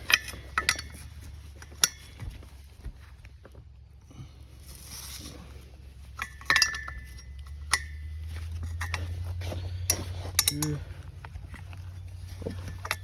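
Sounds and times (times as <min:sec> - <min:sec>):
wrench clinking on metal bolts: 0:00.0 - 0:02.2, 0:06.2 - 0:09.2, 0:09.9 - 0:11.0, 0:12.4 - 0:13.0
steady low hum: 0:00.0 - 0:13.0.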